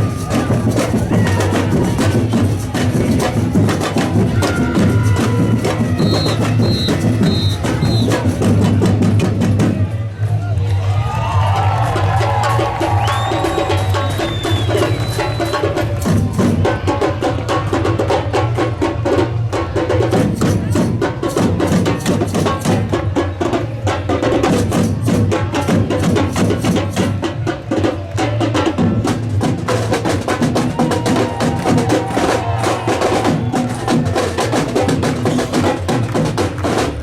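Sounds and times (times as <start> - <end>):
samba drum ensemble playing: 0.0 - 10.3, 11.0 - 37.0.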